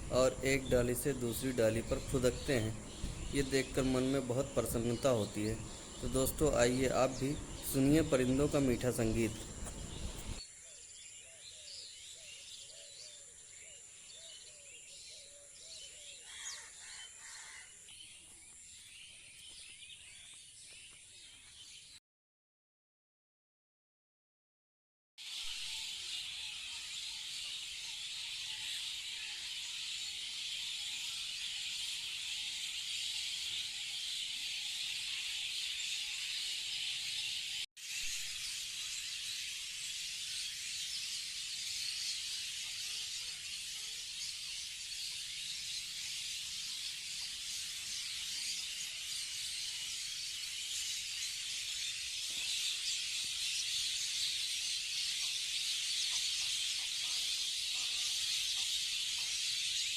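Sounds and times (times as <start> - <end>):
small birds chirping: 0.0 - 22.0, 25.3 - 59.9.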